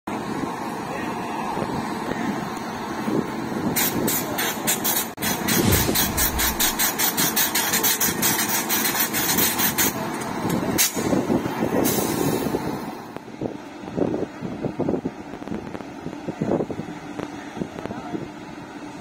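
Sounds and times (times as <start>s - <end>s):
continuous rumble: 0.2s - 11.8s
train wheels clattering: 4.7s - 9.5s.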